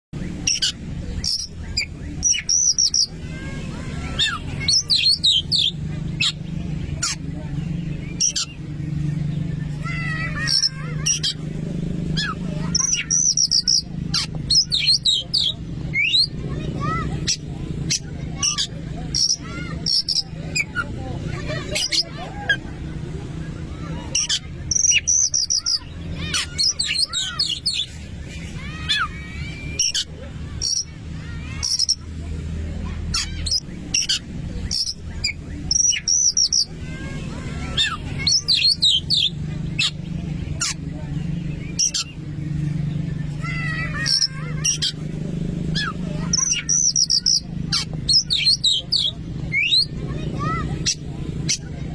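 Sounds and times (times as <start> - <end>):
bird whistling and chattering: 0.2 - 22.8, 23.6 - 51.9.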